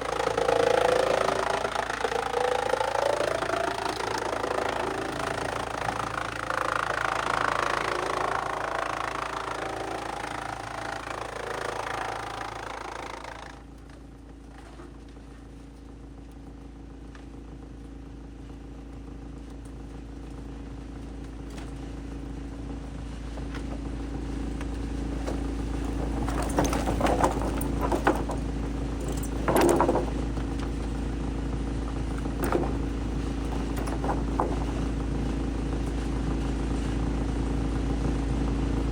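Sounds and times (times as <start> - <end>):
wood shredder grinding: 0.0 - 15.5, 23.4 - 38.9
engine running: 0.0 - 38.9
sharp clanks and knocks: 25.2 - 30.9, 32.1 - 35.0.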